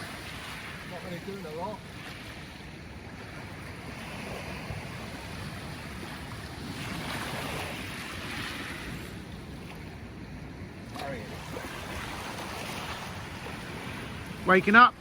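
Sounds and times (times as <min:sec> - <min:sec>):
surf washing on a beach: 0:00.0 - 0:15.0
wind rumbling on microphone: 0:00.0 - 0:15.0.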